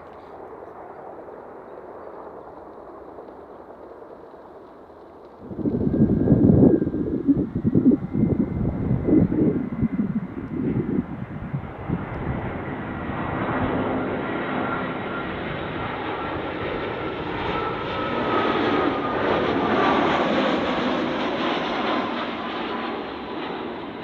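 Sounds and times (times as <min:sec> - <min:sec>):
jet airliner engine noise: 0:00.0 - 0:24.0
wind buffeting microphone: 0:05.2 - 0:22.2.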